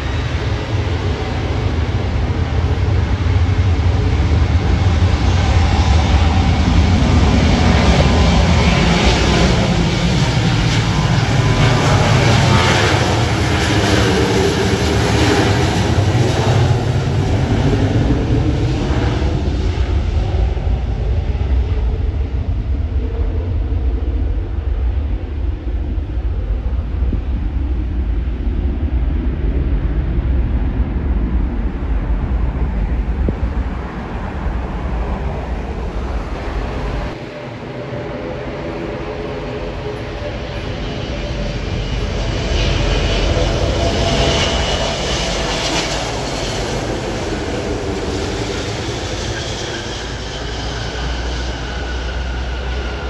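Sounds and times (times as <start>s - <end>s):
aircraft engines passing: 0.0s - 53.0s.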